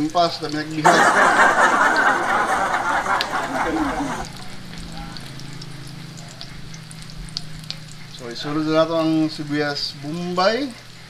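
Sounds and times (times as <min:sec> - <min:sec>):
garlic sizzling in hot oil: 0:00.0 - 0:00.8, 0:04.2 - 0:11.0.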